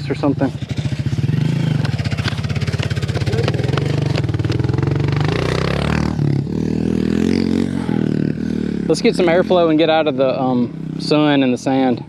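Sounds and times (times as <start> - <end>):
dirt bike engine idling and revving: 0.0 - 12.0.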